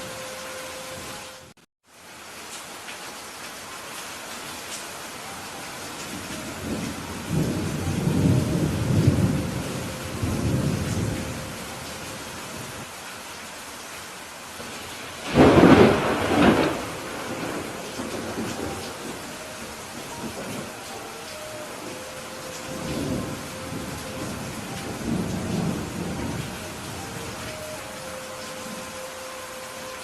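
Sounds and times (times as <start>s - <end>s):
steady rain: 0.0s - 30.0s
thunder rumbling: 6.1s - 12.8s, 14.6s - 29.0s
loud thunderclap: 15.2s - 19.1s.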